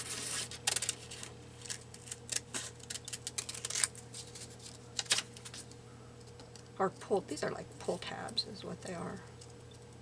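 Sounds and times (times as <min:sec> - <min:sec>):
scissors snipping paper: 0:00.1 - 0:03.9.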